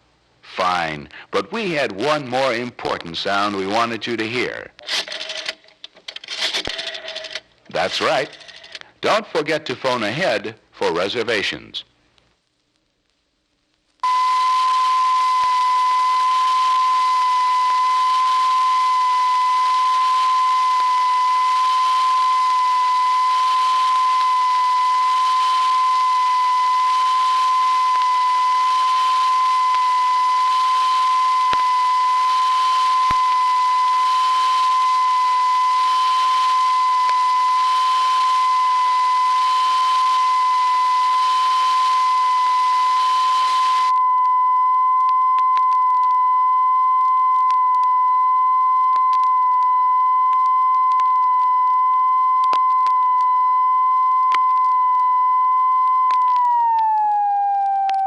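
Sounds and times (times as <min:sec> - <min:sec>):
steady electronic tone: 0:14.0 - 0:45.1.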